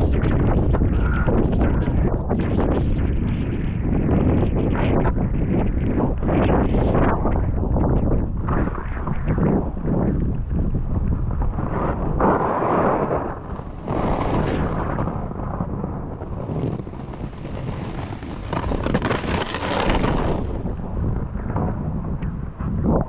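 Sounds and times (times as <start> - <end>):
wind buffeting microphone: 0.0 - 23.0
snowboard sliding on snow: 12.7 - 15.4, 16.1 - 21.6.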